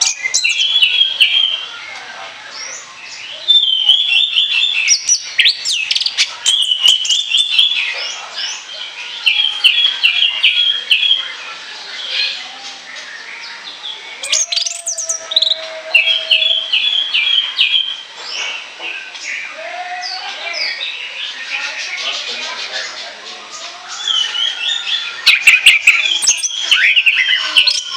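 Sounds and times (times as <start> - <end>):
thrush singing: 13.7 - 18.1.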